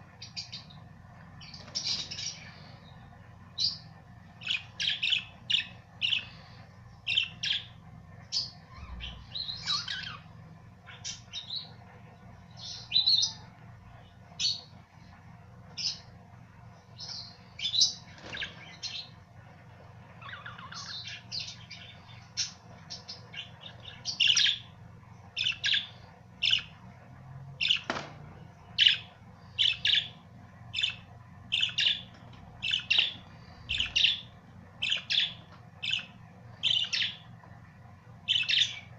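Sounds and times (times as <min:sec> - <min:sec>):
budgerigars chirping: 0:04.4 - 0:11.7, 0:20.2 - 0:24.7, 0:25.4 - 0:26.8, 0:28.8 - 0:37.2, 0:38.3 - 0:38.9.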